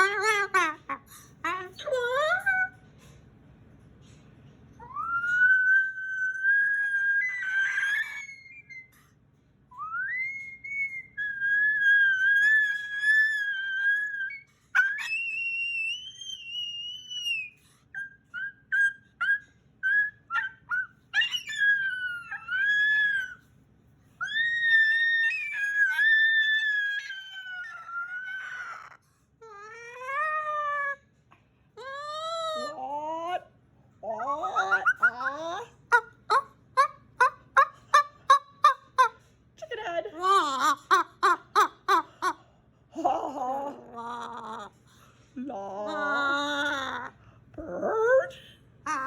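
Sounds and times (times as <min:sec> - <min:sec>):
cockatoo whistled calls: 0:04.8 - 0:09.0, 0:09.8 - 0:23.4.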